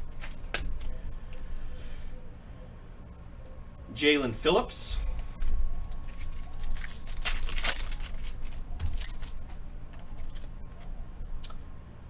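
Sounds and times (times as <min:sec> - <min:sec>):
cards and wrapper rustling: 0:05.4 - 0:10.8.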